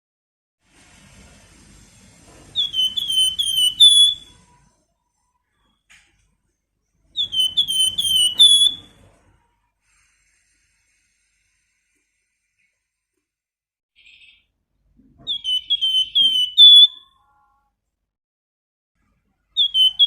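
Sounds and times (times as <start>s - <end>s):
songbird whistling: 2.6s - 4.5s, 7.2s - 9.0s, 15.3s - 17.2s, 19.6s - 20.0s.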